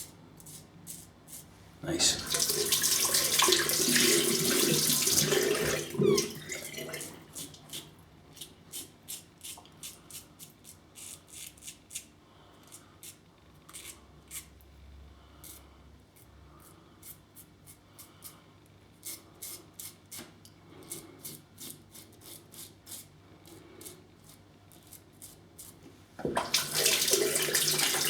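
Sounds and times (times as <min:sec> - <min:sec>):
tap running: 0:02.2 - 0:07.6.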